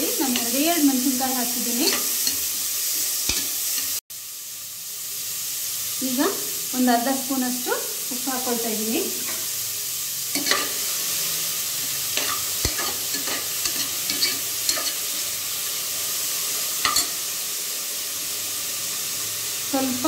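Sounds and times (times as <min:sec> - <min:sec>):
carrots sizzling in a pot: 0:00.0 - 0:20.0
metal ladle scraping a pot: 0:12.2 - 0:15.3.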